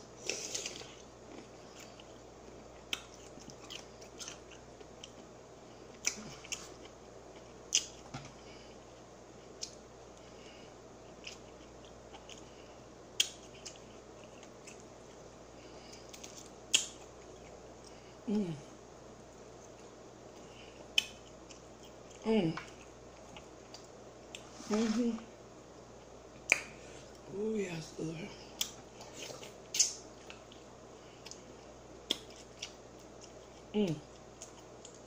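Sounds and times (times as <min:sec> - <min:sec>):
chewing and mouth sounds: 0:00.2 - 0:08.1, 0:11.1 - 0:15.2, 0:28.5 - 0:35.0
person humming: 0:18.3 - 0:18.7.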